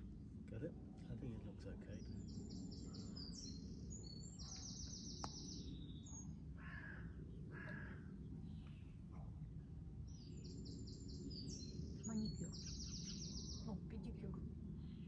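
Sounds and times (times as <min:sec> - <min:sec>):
steady low hum: 0:00.0 - 0:15.0
songbird singing and trilling: 0:01.9 - 0:06.4, 0:10.0 - 0:15.0
crow cawing: 0:06.6 - 0:08.2.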